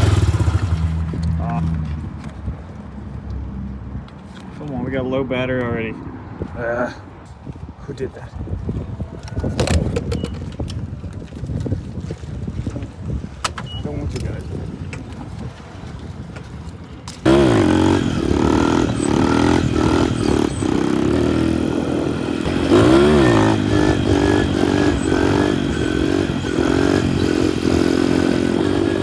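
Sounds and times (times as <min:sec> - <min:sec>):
minibike engine revving: 0:00.0 - 0:01.6, 0:17.2 - 0:29.0.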